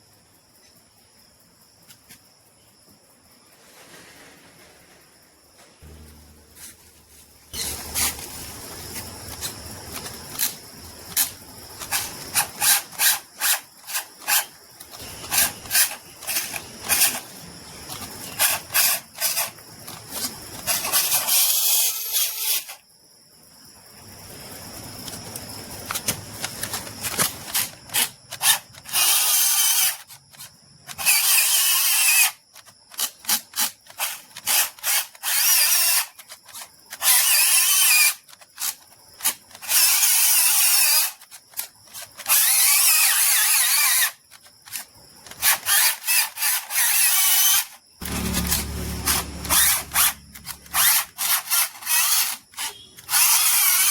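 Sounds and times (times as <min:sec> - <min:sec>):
power drill bursts: 0:31.0 - 0:32.4, 0:33.0 - 0:36.2, 0:37.0 - 0:38.2, 0:45.4 - 0:53.9.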